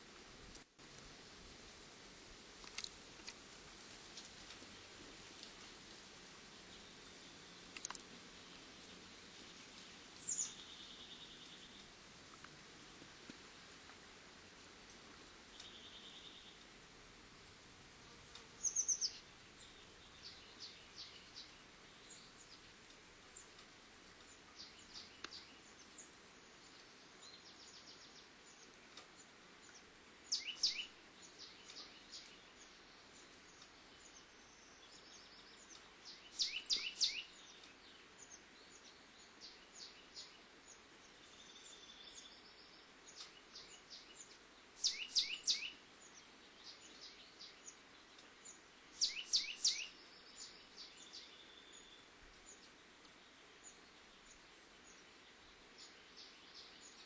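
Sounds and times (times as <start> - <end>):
faint steady hiss: 0.0 - 57.0
small bird chirping: 10.2 - 11.9, 18.5 - 22.6, 29.6 - 52.7.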